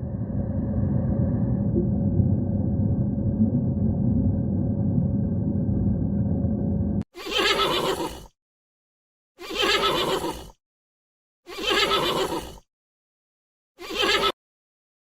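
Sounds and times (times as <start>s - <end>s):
steady low rumble: 0.0s - 7.0s
horse whinnying: 7.2s - 8.3s, 9.4s - 10.5s, 11.5s - 12.6s, 13.8s - 14.4s.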